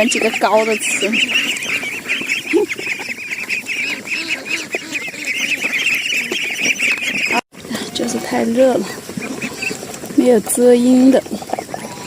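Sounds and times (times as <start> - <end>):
adult fowl calling: 0.0 - 7.4
ducklings peeping: 0.0 - 12.0.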